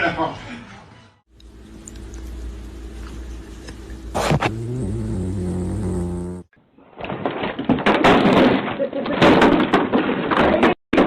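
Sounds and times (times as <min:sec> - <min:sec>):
steady low hum: 0:01.3 - 0:06.5
noisy sounds: 0:01.4 - 0:05.8.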